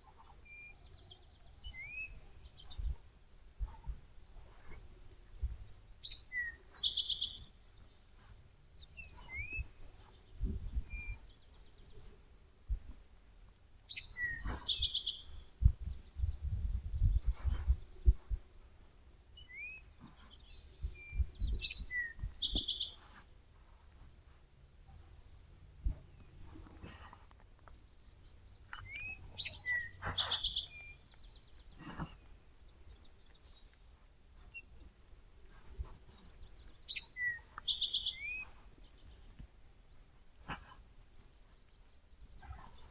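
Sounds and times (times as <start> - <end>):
bird chirps: 0.0 - 3.0, 6.0 - 12.1, 13.9 - 18.3, 19.4 - 23.2, 25.8 - 40.2, 41.3 - 42.9
songbird whistle and trill: 0.2 - 2.9, 6.0 - 7.5, 8.8 - 11.4, 13.9 - 15.5, 19.4 - 23.0, 28.7 - 31.4, 36.5 - 39.3.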